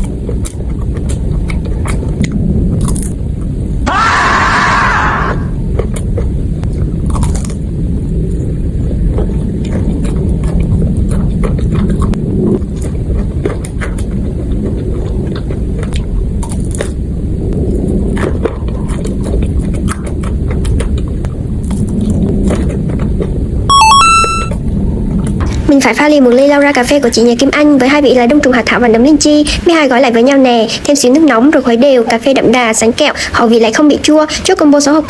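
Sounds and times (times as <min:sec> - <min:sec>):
wet chewing with crunches: 0:00.0 - 0:03.6, 0:04.8 - 0:25.7
electronic jingle: 0:23.7 - 0:24.6.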